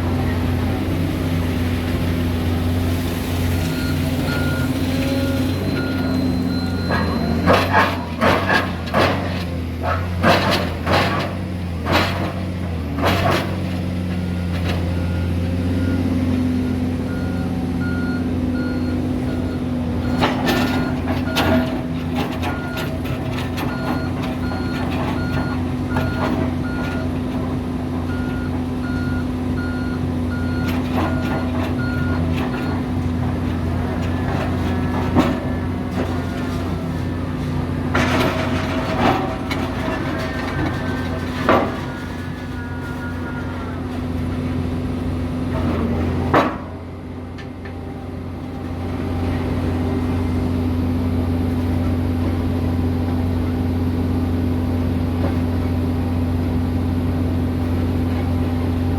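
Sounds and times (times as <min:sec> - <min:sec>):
diesel construction machinery running: 0:00.0 - 0:58.9
reversing alarm beeping: 0:03.6 - 0:08.6, 0:14.2 - 0:27.2, 0:28.1 - 0:33.1, 0:38.0 - 0:43.8.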